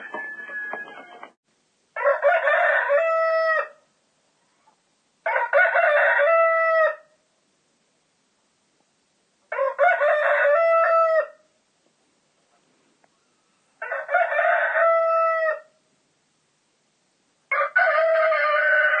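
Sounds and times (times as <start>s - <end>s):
rooster crowing: 0.0s - 1.4s, 2.0s - 3.8s, 5.2s - 7.1s, 9.5s - 11.4s, 13.3s - 15.7s, 17.5s - 19.0s.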